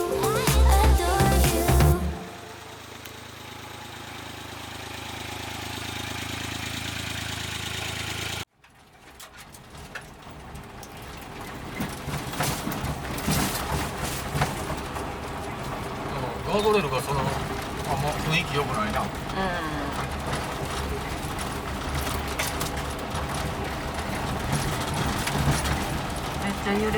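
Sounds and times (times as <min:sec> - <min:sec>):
car engine running: 0:00.0 - 0:08.5, 0:12.8 - 0:26.9
rattles and knocks of jolting drive: 0:08.6 - 0:19.4, 0:20.0 - 0:26.9.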